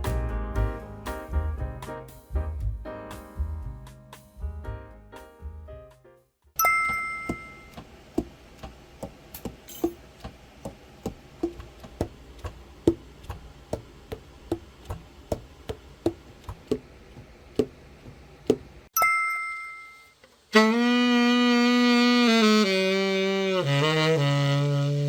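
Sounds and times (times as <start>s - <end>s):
two-note chime: 6.6s - 7.8s, 19.0s - 20.2s.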